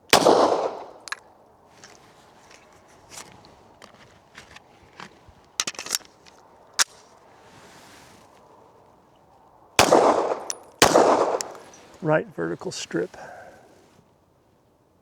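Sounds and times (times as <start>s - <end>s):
pistol shot with echo: 0.1s - 1.0s, 9.8s - 11.6s.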